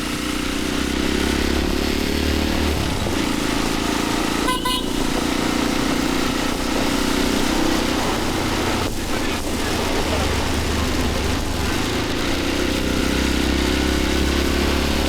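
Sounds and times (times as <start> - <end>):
motorcycle engine running: 0.0 - 15.0
vehicle horn toot: 4.3 - 5.8.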